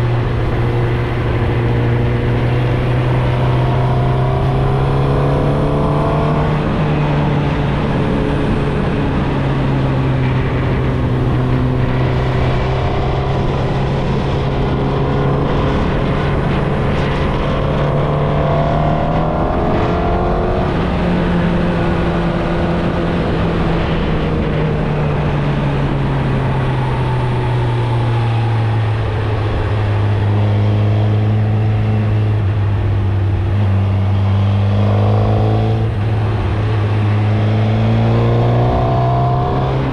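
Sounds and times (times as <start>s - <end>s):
motorcycle engine running: 0.0s - 18.1s.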